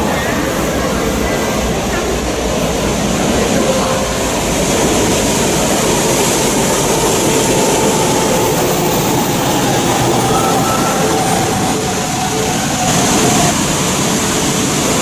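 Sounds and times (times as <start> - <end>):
train running at speed: 0.0 - 15.0.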